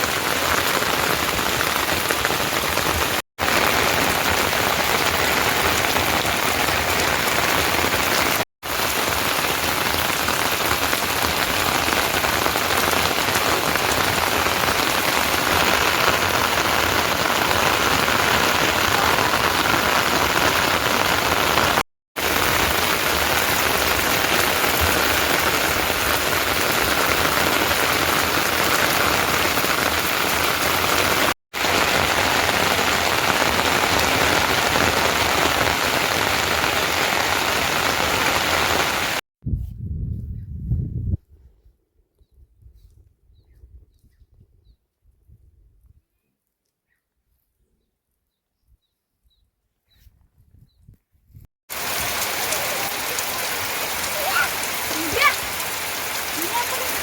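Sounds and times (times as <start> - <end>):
heavy rain falling: 0.0 - 39.2, 51.7 - 57.0.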